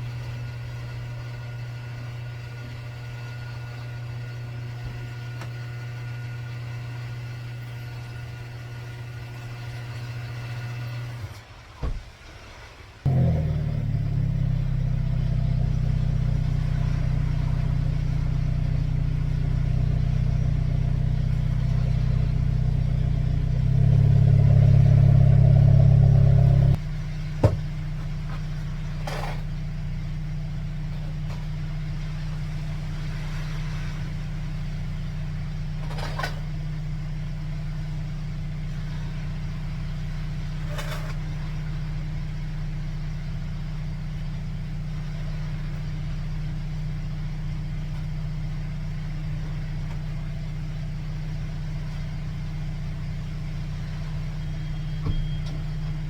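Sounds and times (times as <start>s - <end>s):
car engine running: 13.1s - 56.0s.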